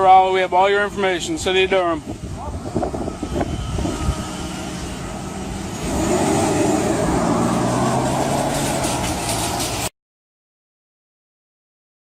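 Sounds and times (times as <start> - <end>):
road noise: 0.0 - 9.9
vehicle engine hum: 0.8 - 9.9.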